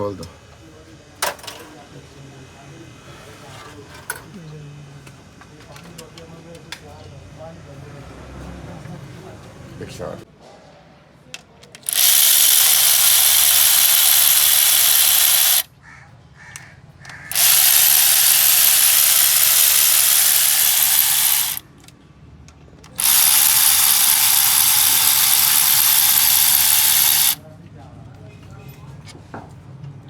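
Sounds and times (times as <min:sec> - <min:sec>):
compressed-air tool hissing: 0:11.8 - 0:15.7, 0:17.3 - 0:21.6, 0:23.0 - 0:27.4.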